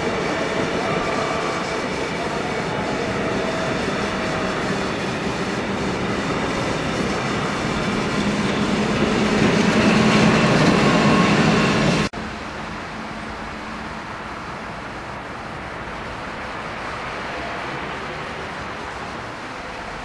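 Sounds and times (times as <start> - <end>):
whining tones: 0.0 - 12.1
electric train passing: 0.0 - 20.0.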